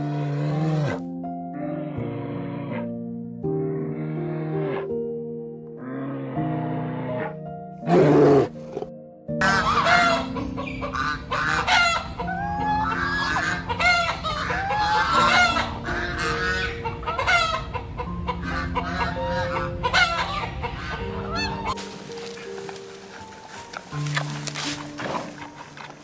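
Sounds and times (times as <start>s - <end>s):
soft background music: 0.0s - 26.0s
chickens clucking: 9.4s - 26.0s.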